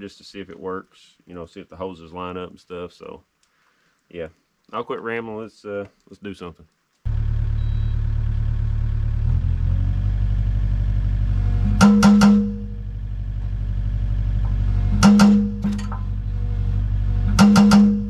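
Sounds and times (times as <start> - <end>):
excavator diesel engine running: 7.1 - 18.0.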